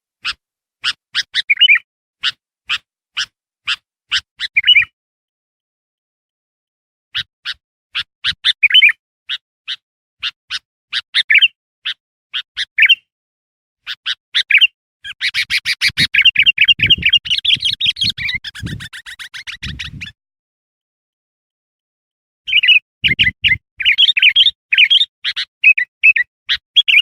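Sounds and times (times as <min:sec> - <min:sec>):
bird chattering: 0:00.2 - 0:04.9, 0:14.1 - 0:20.1, 0:22.5 - 0:27.0
bulbul chirping and warbling: 0:15.1 - 0:20.1, 0:22.5 - 0:27.0.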